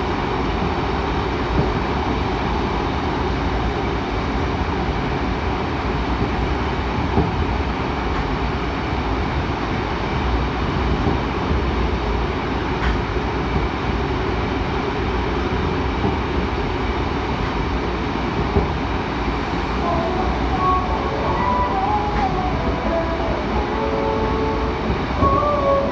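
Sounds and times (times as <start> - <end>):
subway wheels rumbling on rail: 0.0 - 25.9
faint wavering tone: 19.8 - 25.9.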